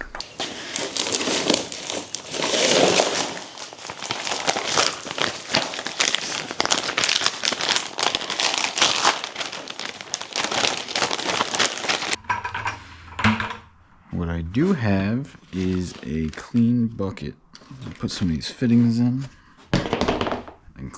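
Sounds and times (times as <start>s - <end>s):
packaging crinkling and rustling: 0.0s - 12.2s.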